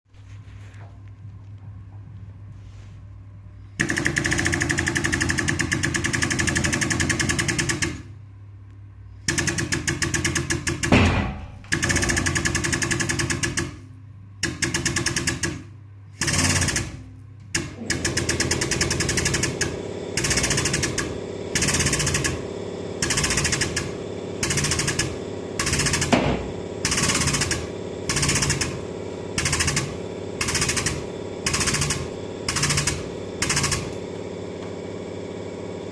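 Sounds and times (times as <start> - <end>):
power tool hammering: 3.8 - 8.1, 9.3 - 13.8, 14.4 - 35.9.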